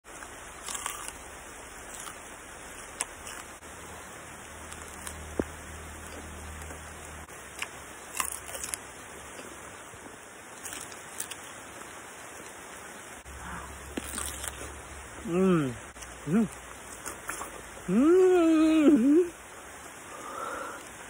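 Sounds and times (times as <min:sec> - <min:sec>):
raw vegetables crunching: 0:00.1 - 0:03.6, 0:04.4 - 0:09.6, 0:10.5 - 0:11.5, 0:13.3 - 0:18.0
steady hiss: 0:00.1 - 0:21.0.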